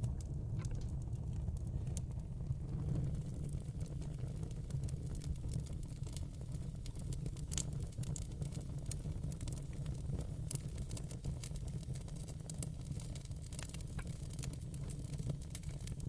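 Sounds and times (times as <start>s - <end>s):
burning wood crackling: 0.0s - 16.0s
fireplace flames roaring: 0.0s - 16.0s.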